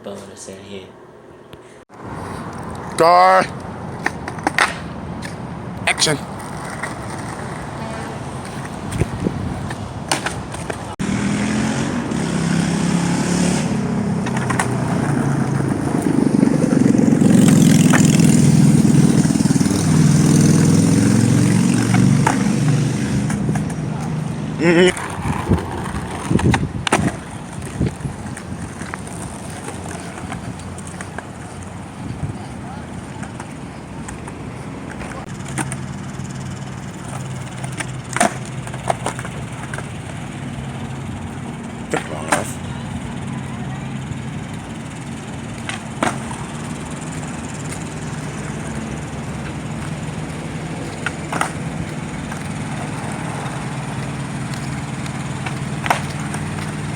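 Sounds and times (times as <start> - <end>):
skateboard rolling rumble: 1.9 - 11.4, 13.6 - 56.9
skateboard clacking on pavement: 2.0 - 11.0, 14.1 - 56.9
motor engine running: 11.0 - 30.5, 35.3 - 56.9.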